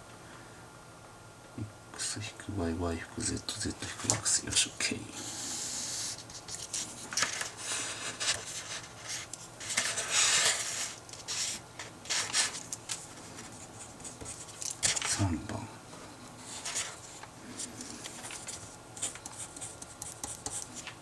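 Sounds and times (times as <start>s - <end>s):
pen scratching on paper: 16.4s - 20.8s.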